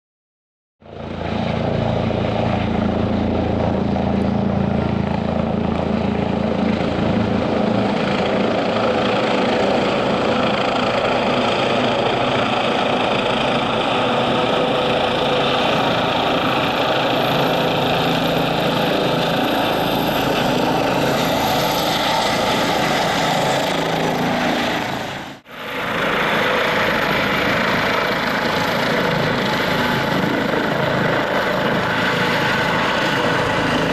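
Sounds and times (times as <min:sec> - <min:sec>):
helicopter engines and rotor: 0:00.8 - 0:33.9.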